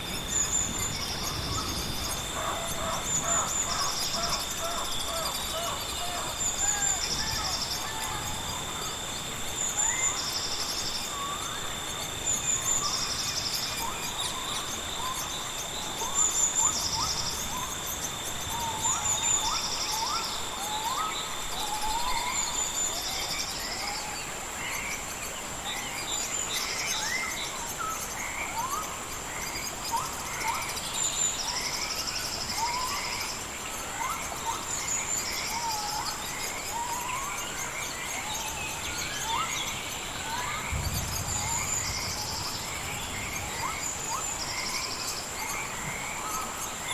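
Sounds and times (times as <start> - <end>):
high-pitched insect drone: 0.0 - 46.9
steady insect tone: 0.0 - 46.9.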